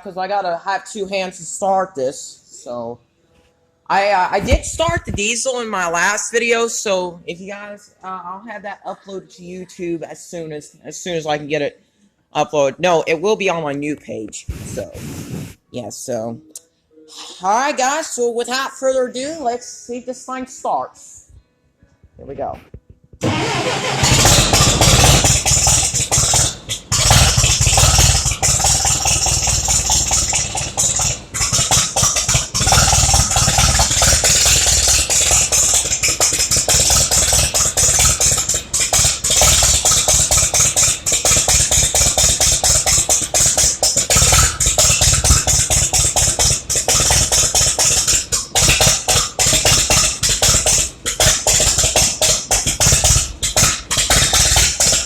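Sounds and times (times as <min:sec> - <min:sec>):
tractor engine cranking on starter: 0:23.2 - 0:55.0.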